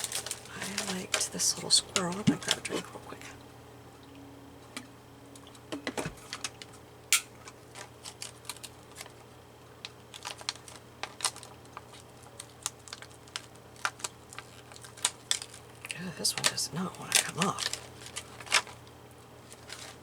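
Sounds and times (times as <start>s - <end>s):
hands handling paper clicking: 0.0s - 2.9s, 7.3s - 20.0s.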